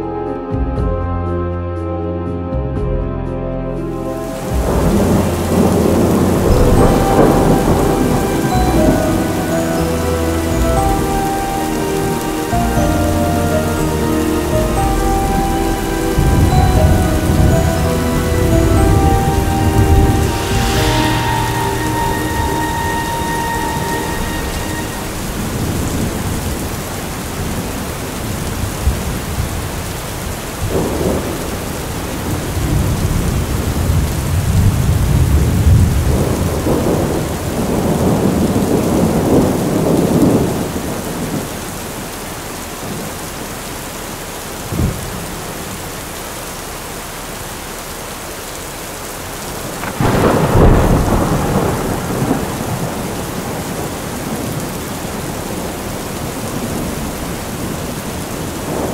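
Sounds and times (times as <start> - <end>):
steady rain: 0.0 - 58.9
rolling thunder: 4.3 - 41.8, 49.6 - 58.9
loud thunderclap: 4.5 - 11.2, 16.1 - 29.9, 30.5 - 41.5, 49.6 - 58.9.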